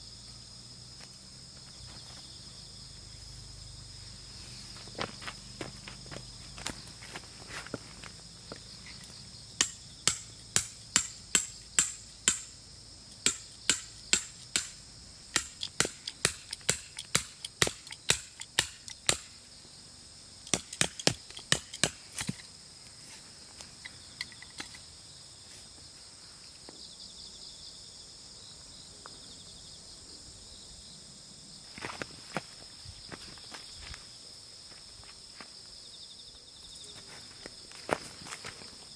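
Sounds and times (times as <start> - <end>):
hammer striking tent stake: 9.6 - 12.6, 13.2 - 19.3, 20.5 - 22.4.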